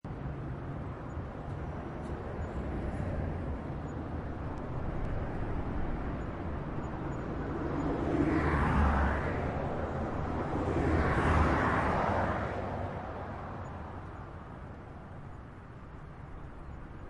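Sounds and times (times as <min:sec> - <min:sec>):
highway traffic rushing: 0:00.0 - 0:17.0.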